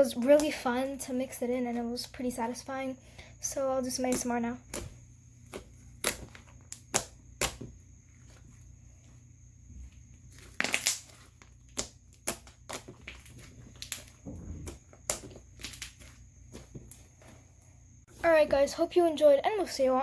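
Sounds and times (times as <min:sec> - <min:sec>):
slime crackling: 0:04.0 - 0:08.5, 0:10.2 - 0:17.3
slime squishing with clicks and pops: 0:04.1 - 0:07.7, 0:10.4 - 0:17.0.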